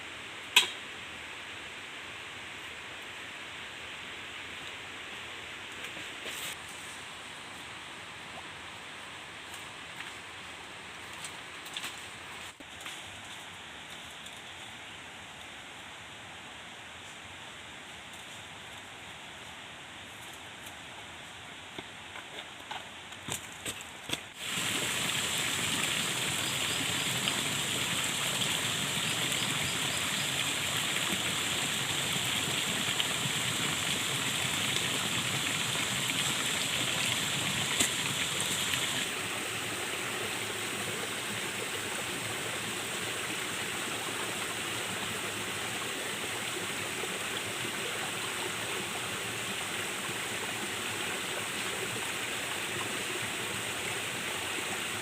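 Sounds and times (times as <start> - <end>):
stream water running: 22.1 - 55.0.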